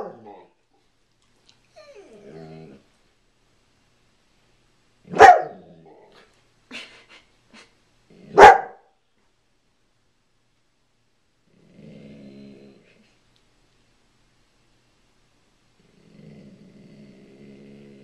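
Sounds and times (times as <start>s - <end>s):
dog barking: 0.0s - 0.5s, 5.1s - 5.6s, 8.3s - 8.9s.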